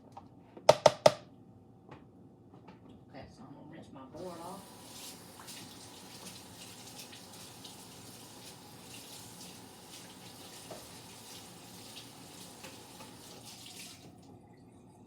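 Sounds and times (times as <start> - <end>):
tap water splashing in sink: 4.2 - 14.3.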